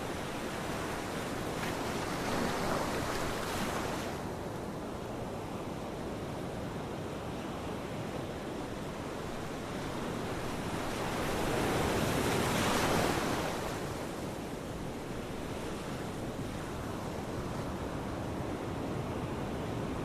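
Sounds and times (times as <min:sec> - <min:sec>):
ocean surf: 0:07.0 - 0:20.0.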